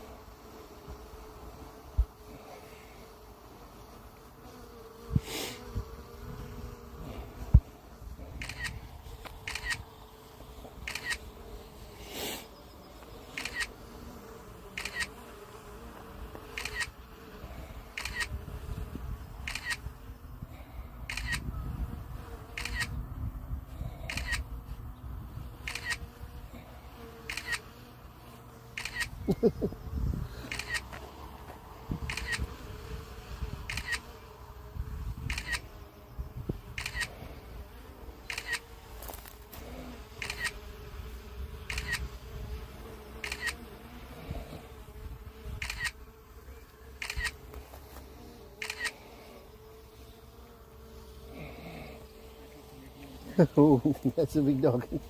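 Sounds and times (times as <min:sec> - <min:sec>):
short sharp clicks: 0:08.4 - 0:09.8, 0:10.9 - 0:11.2, 0:13.3 - 0:13.7, 0:14.8 - 0:15.1, 0:16.5 - 0:17.0, 0:18.0 - 0:18.3, 0:19.4 - 0:19.8, 0:21.1 - 0:21.5, 0:25.7 - 0:26.0, 0:27.3 - 0:27.6, 0:30.4 - 0:31.0, 0:33.6 - 0:34.0, 0:35.2 - 0:35.7, 0:36.8 - 0:37.1, 0:38.2 - 0:38.6, 0:43.2 - 0:43.6, 0:45.6 - 0:46.0, 0:47.0 - 0:47.4.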